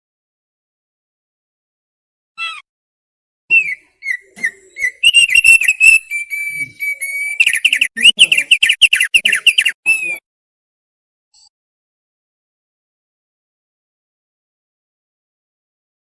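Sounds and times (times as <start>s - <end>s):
bird singing whistled notes: 3.5s - 10.2s.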